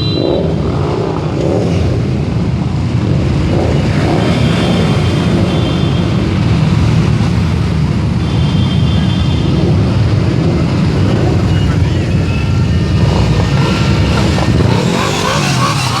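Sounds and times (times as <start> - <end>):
motorcycles riding past: 0.0 - 16.0.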